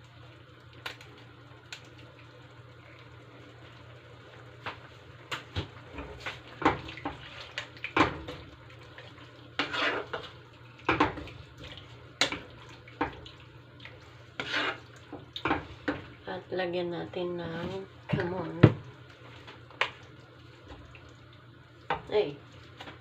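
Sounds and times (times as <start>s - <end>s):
metal spoon scraping a pan: 9.6s - 10.3s, 14.4s - 14.9s.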